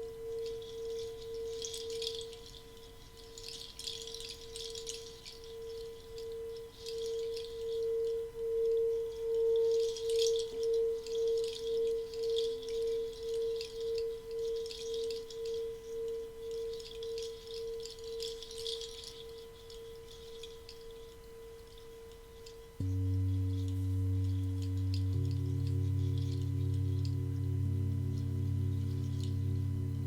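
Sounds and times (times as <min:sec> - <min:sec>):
pulsing ringing tone: 0:22.8 - 0:30.0
soft high shimmer: 0:22.8 - 0:30.0.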